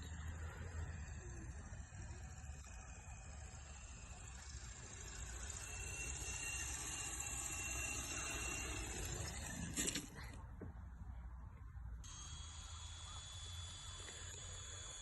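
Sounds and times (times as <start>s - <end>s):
rc helicopter whirring whine: 0.0s - 10.4s, 12.0s - 15.0s.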